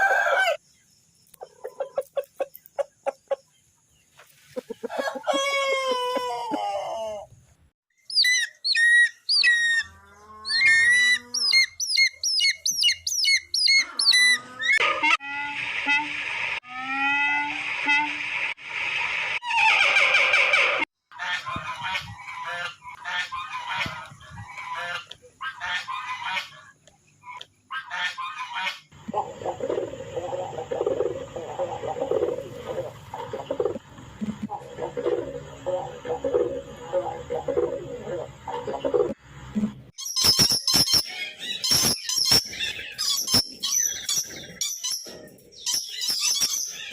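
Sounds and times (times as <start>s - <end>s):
animal squeaking and chirping: 8.1s - 14.8s, 40.0s - 46.9s.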